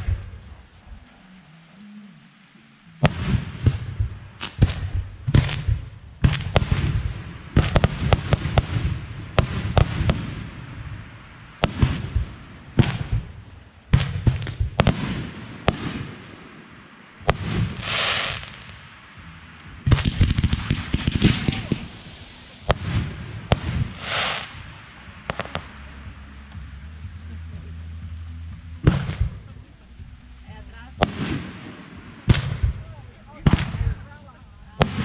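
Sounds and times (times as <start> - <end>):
fireworks crackling: 0.0 - 35.0
fireworks booming: 2.9 - 27.8, 28.5 - 35.0
firework hissing: 14.1 - 26.4.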